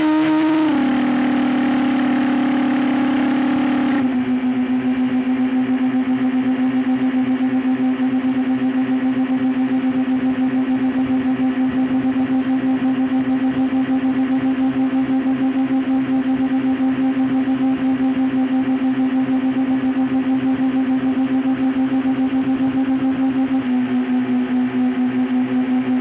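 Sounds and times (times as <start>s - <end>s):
motorboat engine running: 0.0s - 26.0s.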